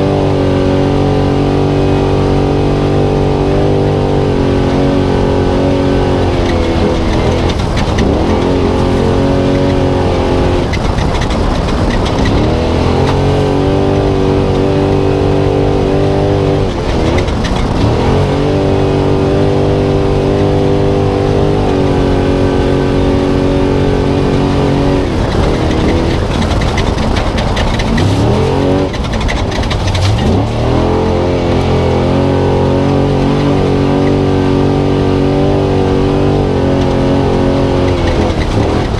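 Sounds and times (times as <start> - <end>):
truck engine revving hard: 0.0 - 38.9.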